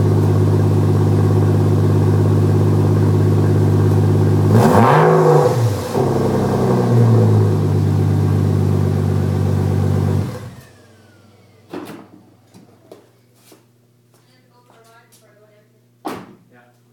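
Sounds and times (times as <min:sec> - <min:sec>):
sports car engine revving and idling: 0:00.0 - 0:10.8.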